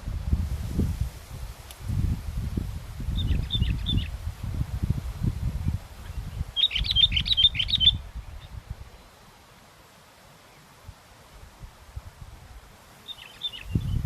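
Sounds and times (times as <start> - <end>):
wind buffeting microphone: 0.0 - 9.0, 13.5 - 14.0.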